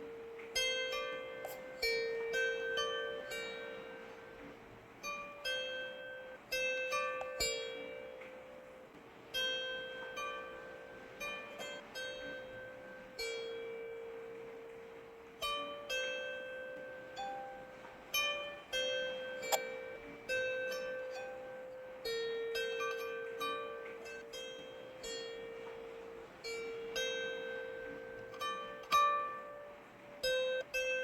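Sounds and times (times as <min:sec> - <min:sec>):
plucked string notes: 0:00.0 - 0:31.0.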